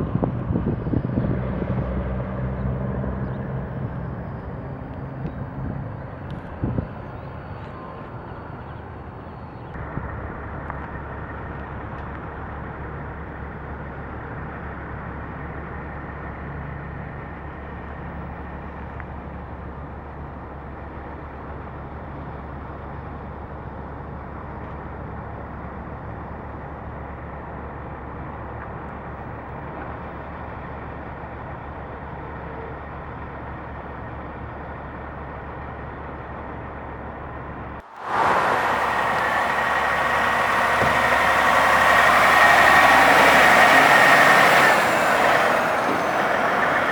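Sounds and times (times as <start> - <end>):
truck engine humming: 0.0 - 15.6, 37.4 - 46.9.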